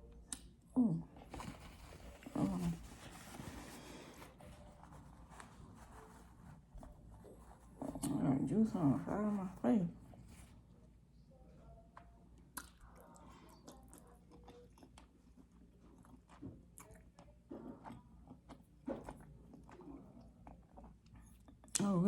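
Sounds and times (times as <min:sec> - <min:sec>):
low steady hum: 0:00.0 - 0:22.0
person chewing food: 0:12.0 - 0:21.8.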